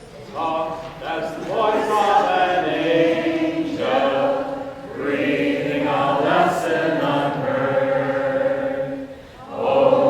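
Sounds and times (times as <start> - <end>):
group singing held notes: 0.0 - 10.0.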